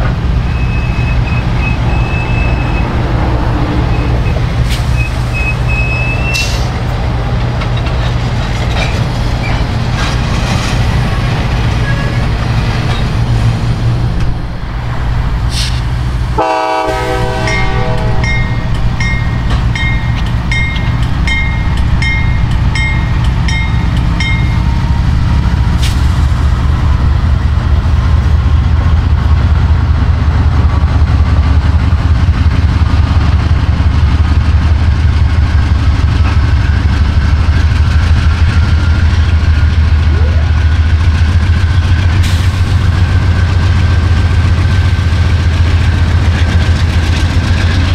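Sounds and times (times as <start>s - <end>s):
diesel locomotive rumbling: 0.0s - 47.9s
train horn blast: 16.4s - 18.7s.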